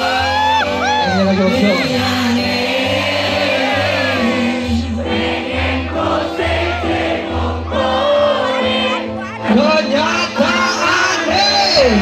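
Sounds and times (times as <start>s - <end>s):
person singing: 0.0s - 5.3s
loud music with heavy bass: 0.1s - 5.2s.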